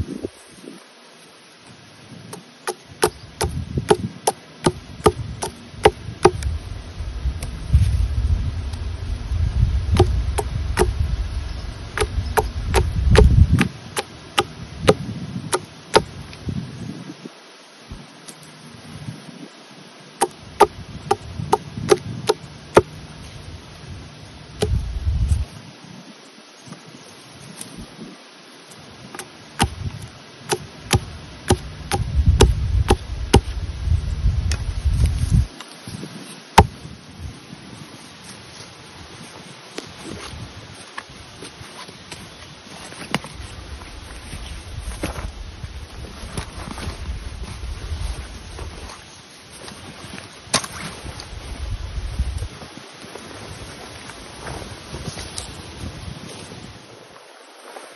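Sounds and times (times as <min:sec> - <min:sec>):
low rumble: 0:06.0 - 0:13.6.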